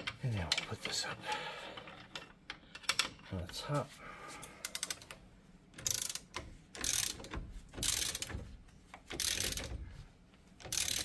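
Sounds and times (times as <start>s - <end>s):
hand ratchet clicking: 4.6s - 9.8s, 10.6s - 11.0s.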